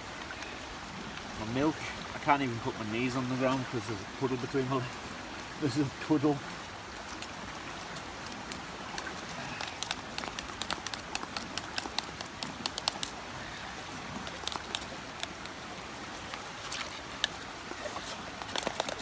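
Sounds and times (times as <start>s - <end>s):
river rushing: 0.0s - 19.0s
utensil clicking against metal pot: 9.6s - 13.1s.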